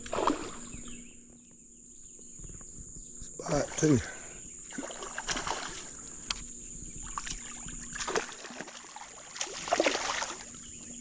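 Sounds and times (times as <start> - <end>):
water splashing: 0.0 - 0.7, 4.7 - 6.0, 7.0 - 10.7.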